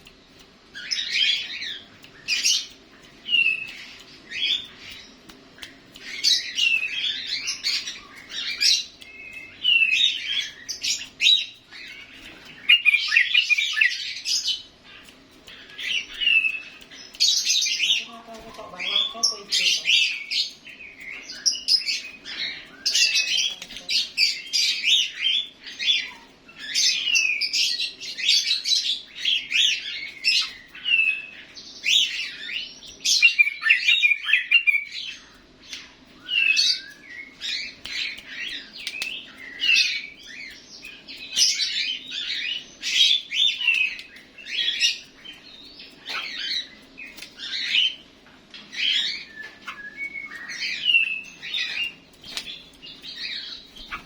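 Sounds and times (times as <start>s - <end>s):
bird singing bubbly chirps: 6.0s - 14.6s, 24.2s - 35.4s.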